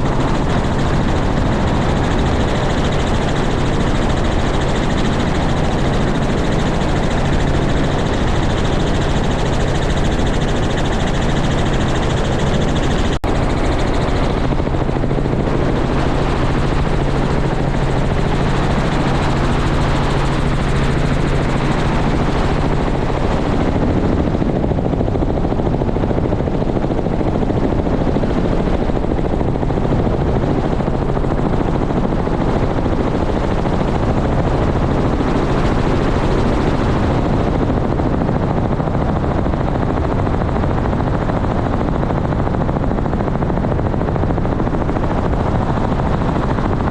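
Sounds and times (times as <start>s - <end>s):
helicopter rotor noise: 0.0s - 46.9s.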